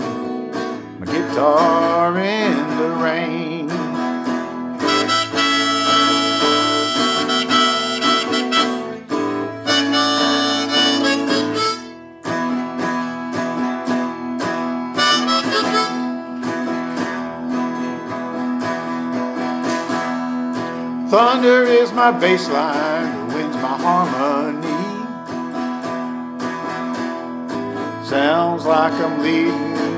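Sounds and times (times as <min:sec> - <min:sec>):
acoustic guitar: 0:00.0 - 0:29.9
blues harmonica solo: 0:04.4 - 0:12.6, 0:14.8 - 0:17.3.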